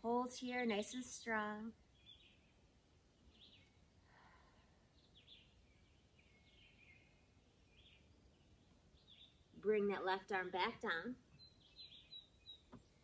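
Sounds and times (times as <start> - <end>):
faint high bird chirps: 11.3 - 13.0.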